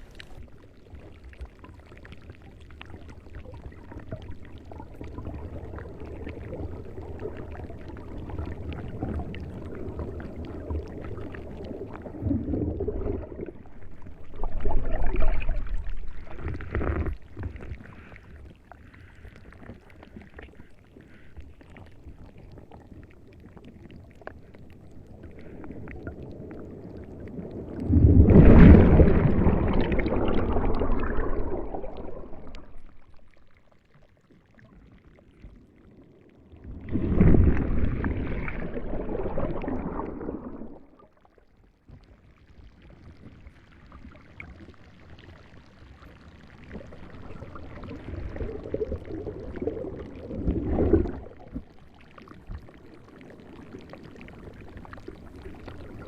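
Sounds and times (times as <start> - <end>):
moving water: 0.0 - 56.0.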